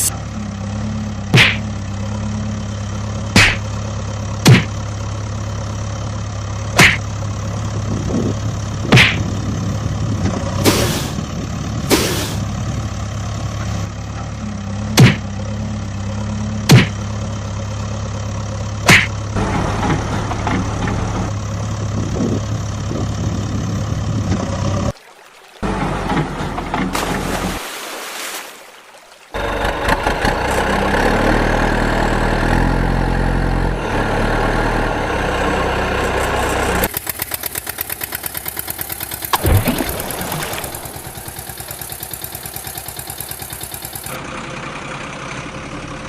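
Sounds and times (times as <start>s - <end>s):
engine idling drone: 0.0s - 25.0s, 29.4s - 46.0s
short hisses: 11.9s - 12.5s.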